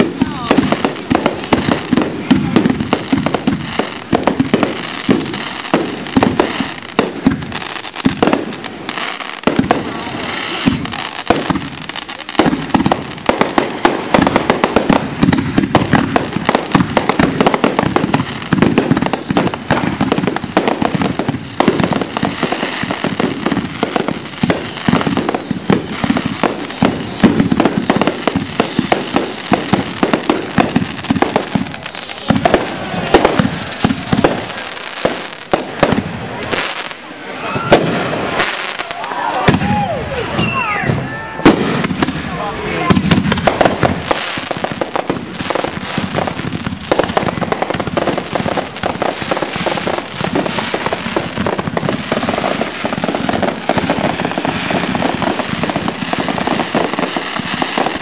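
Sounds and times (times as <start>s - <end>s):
fireworks barrage: 0.0s - 58.0s.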